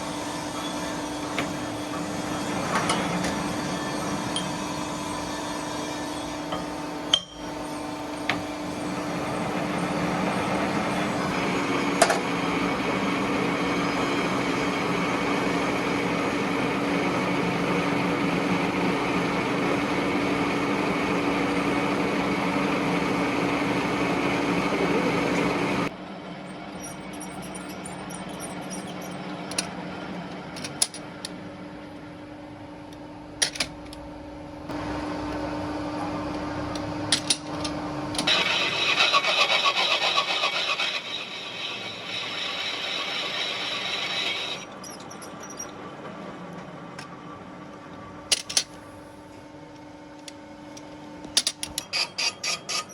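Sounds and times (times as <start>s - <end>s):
factory machinery humming: 0.0s - 25.9s, 34.1s - 44.8s.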